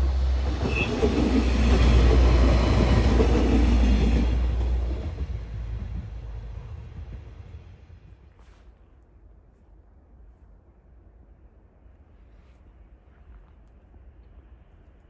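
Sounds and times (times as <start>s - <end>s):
train wheels rumbling on rail: 0.0s - 8.6s.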